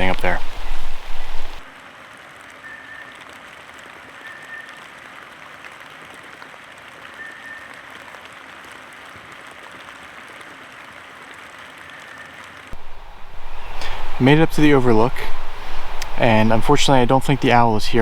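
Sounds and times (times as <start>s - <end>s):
forest brook rushing: 0.0s - 2.4s, 12.8s - 18.0s
high whistled bird note: 12.8s - 18.0s.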